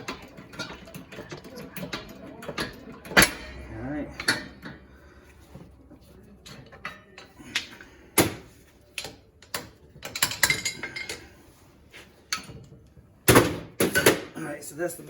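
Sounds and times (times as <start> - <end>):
metal clicks and clanks: 0.0 - 4.8, 8.9 - 11.2.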